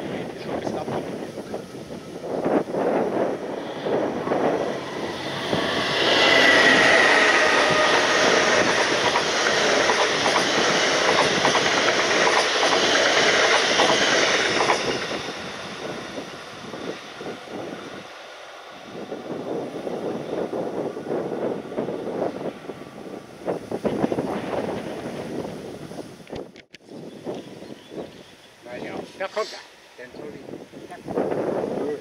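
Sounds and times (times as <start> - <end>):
high whine: 1.6 - 12.1
train wheels clacking on rails: 3.8 - 16.3.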